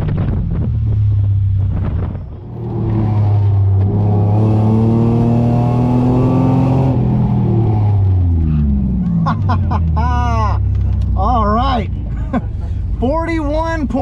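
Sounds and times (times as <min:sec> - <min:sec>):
car engine under throttle: 0:00.0 - 0:14.0.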